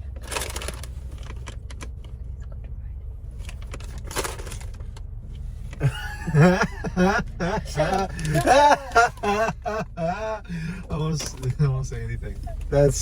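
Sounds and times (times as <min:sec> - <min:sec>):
car engine idling: 0:00.0 - 0:13.0
person speaking: 0:05.8 - 0:13.0.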